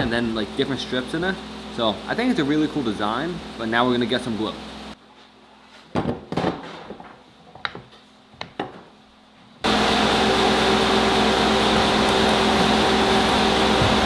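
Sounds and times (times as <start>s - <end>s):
machine hum and hiss: 0.0s - 5.0s, 9.2s - 14.0s.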